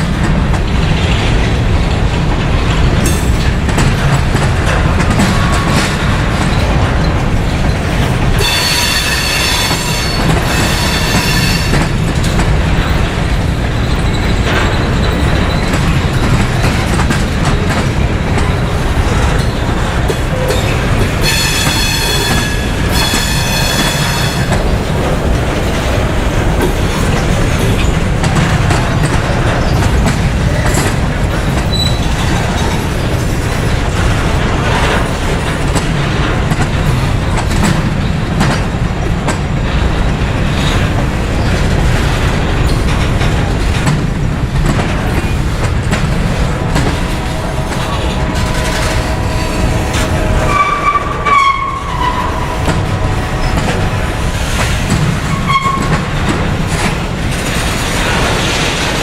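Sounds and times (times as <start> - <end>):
train cars rumbling: 0.0 - 59.0
wheels clacking over rail joints: 0.0 - 59.0
high-pitched wheel squeal: 8.4 - 11.9.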